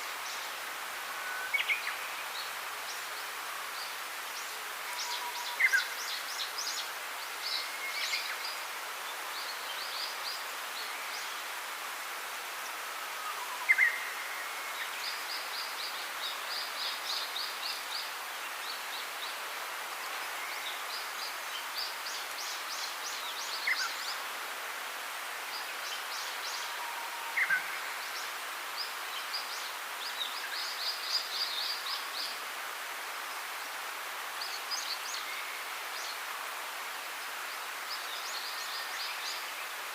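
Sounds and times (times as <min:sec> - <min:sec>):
background hiss: 0:00.0 - 0:39.9.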